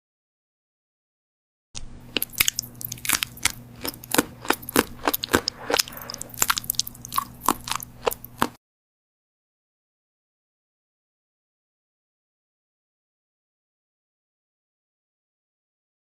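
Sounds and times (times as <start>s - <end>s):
faint low hum: 1.8s - 8.6s
crisp crunching clicks: 2.1s - 8.5s.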